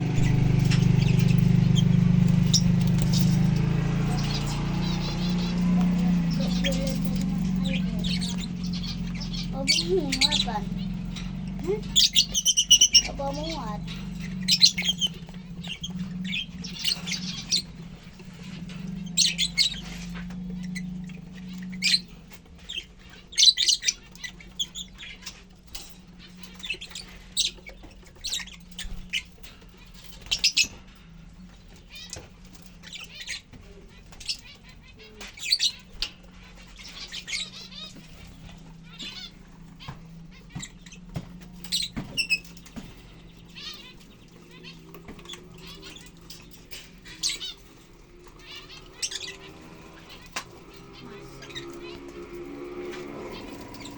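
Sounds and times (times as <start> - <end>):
steady low hum: 0.0 - 23.3
lovebirds chirping and squawking: 0.0 - 53.9.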